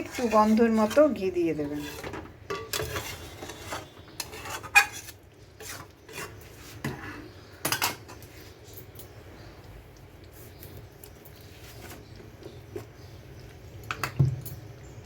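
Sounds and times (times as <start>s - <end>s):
metal spoon scraping cookware: 0.0s - 7.2s.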